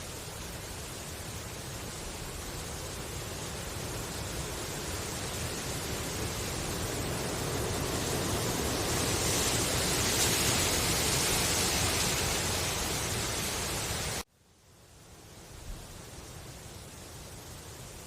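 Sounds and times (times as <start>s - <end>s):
wind rustling bamboo leaves: 0.0s - 18.0s.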